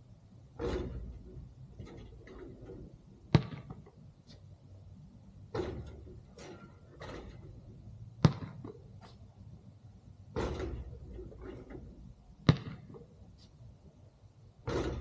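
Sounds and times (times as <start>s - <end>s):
basketball thumping on hard surface: 0.6s - 1.2s, 3.3s - 3.9s, 5.5s - 7.4s, 8.2s - 8.8s, 10.3s - 13.0s, 14.6s - 15.0s.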